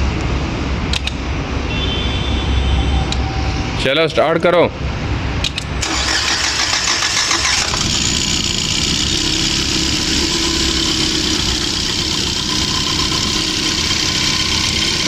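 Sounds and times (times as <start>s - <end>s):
car engine starting and idling: 5.4s - 15.0s.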